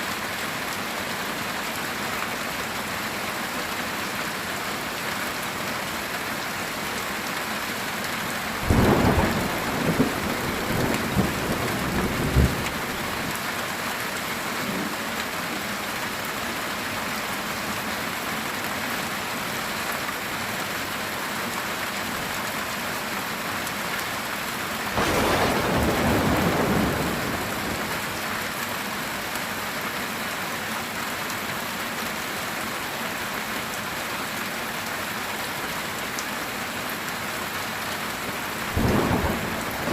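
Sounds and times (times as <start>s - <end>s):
heavy rain on a tin roof: 0.0s - 39.9s
thunder crack and rumble: 8.6s - 13.2s, 25.0s - 28.1s, 38.8s - 39.9s.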